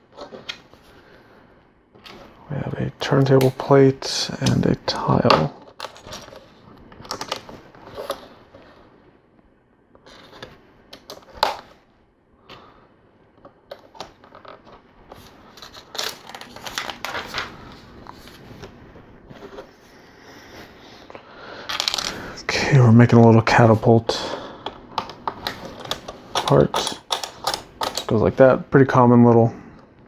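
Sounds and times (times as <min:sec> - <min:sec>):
plastic toy bricks clicking: 0:25.0 - 0:28.1.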